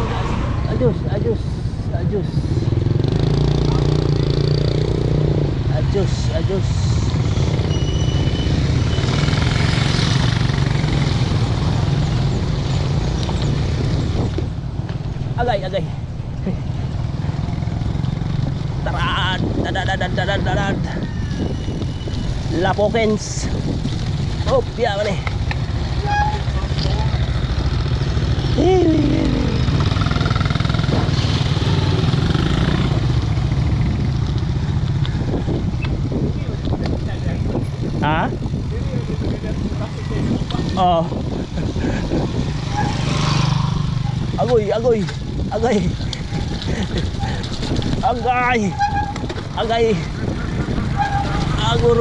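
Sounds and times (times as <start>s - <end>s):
tyres rumbling on rough trail: 0.0s - 52.0s
wind buffeting microphone: 6.8s - 52.0s
bike rattling over rough trail: 44.0s - 52.0s.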